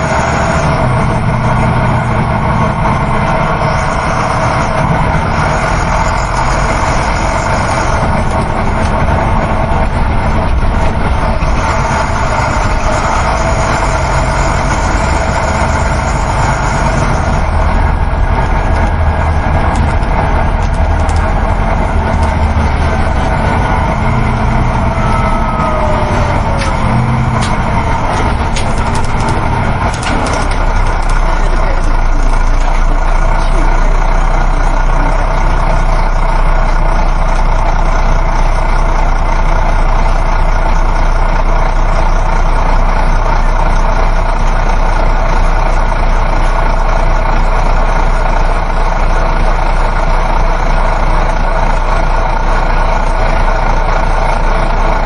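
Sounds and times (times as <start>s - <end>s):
bus engine hum: 0.0s - 55.0s
road and tyre noise: 0.0s - 55.0s.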